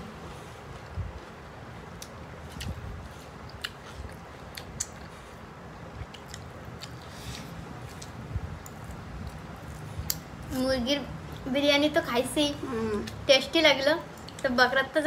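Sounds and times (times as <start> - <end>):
people chewing food: 0.0 - 10.6, 12.6 - 13.3, 14.1 - 14.6.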